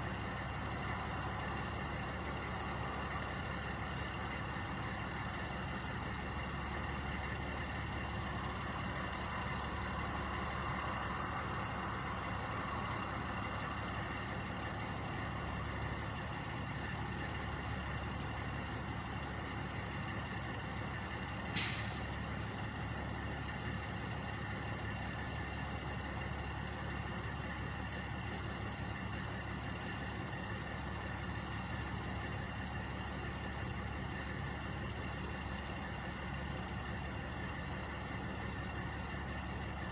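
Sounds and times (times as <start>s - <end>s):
truck engines idling: 0.0s - 39.9s
hiss of air: 21.6s - 22.0s.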